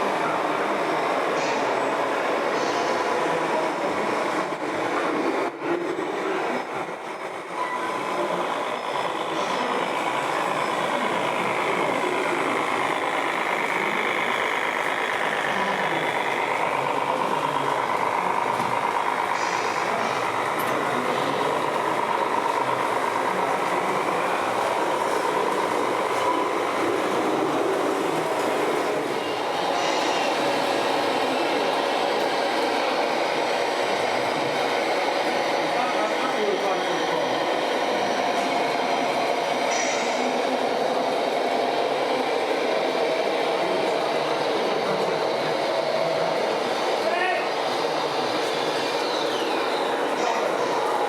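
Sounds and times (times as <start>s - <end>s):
model truck motors whining: 6.6s - 40.8s.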